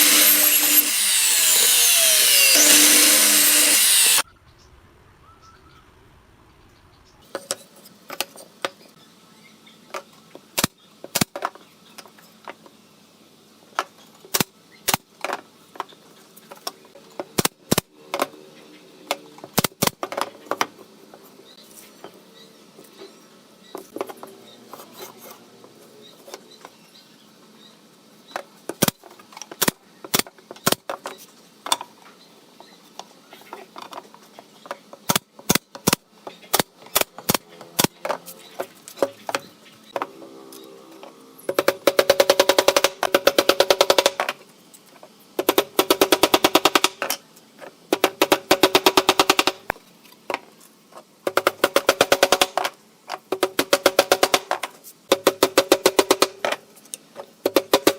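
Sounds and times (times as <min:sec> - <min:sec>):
power tool hammering: 0:00.0 - 0:04.2, 0:41.5 - 0:44.3, 0:45.4 - 0:47.1, 0:47.9 - 0:49.7, 0:51.3 - 0:52.7, 0:53.3 - 0:56.4.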